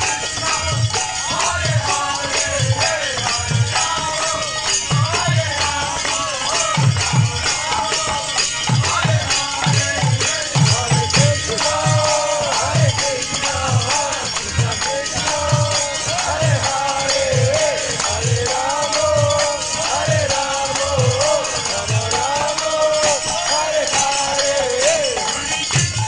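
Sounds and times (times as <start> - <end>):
jingling hand percussion: 0.0 - 26.0.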